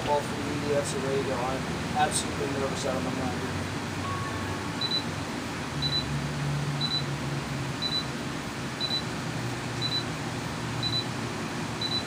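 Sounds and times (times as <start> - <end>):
low hum and hiss: 0.0 - 12.0
short high electronic beeps: 4.0 - 5.1, 5.8 - 6.1, 6.8 - 7.1, 11.8 - 12.0.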